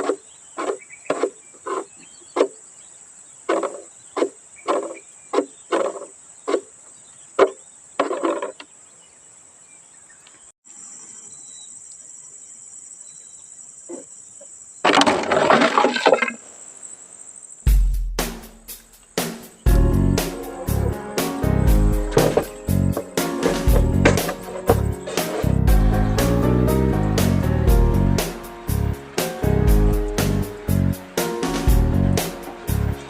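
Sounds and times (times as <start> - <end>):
insects droning: 0.0 - 25.6
scraping rustling burst: 22.1 - 25.7.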